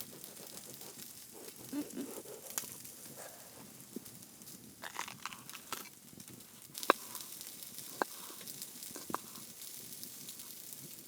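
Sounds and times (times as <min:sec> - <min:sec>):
sharp pops from frying: 0:03.9 - 0:11.0
food sizzling in a pan: 0:06.5 - 0:11.0.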